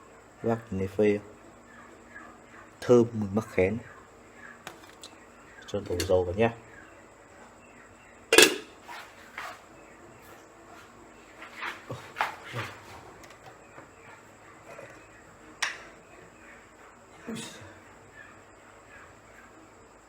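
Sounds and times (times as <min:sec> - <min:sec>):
cookware clanking: 0:08.3 - 0:08.7.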